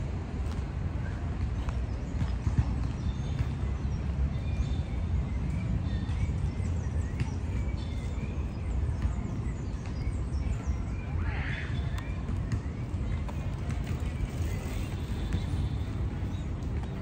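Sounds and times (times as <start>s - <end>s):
birds chirping: 0.6s - 17.0s.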